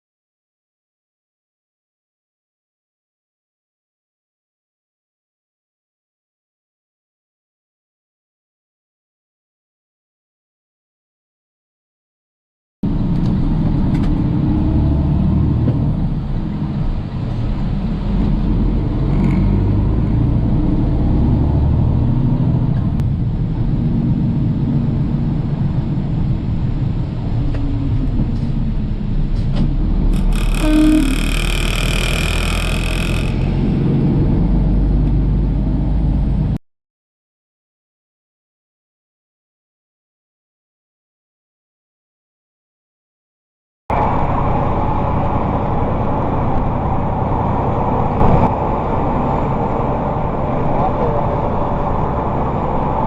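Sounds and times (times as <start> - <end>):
vehicle road rumble: 12.8 - 36.6, 43.9 - 53.0
vehicle horn: 30.2 - 33.4.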